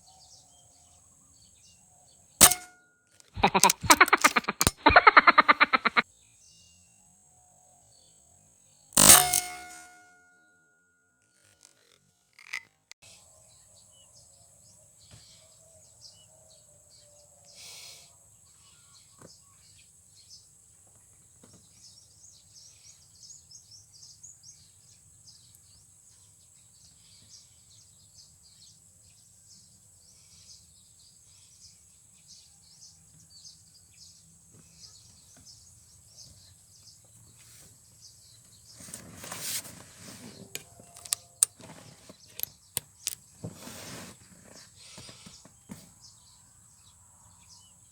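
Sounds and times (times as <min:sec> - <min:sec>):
sharp clicks: 0:02.4 - 0:02.7, 0:03.4 - 0:06.0, 0:09.0 - 0:09.9, 0:40.9 - 0:41.2
birds or insects chirping: 0:03.4 - 0:06.0.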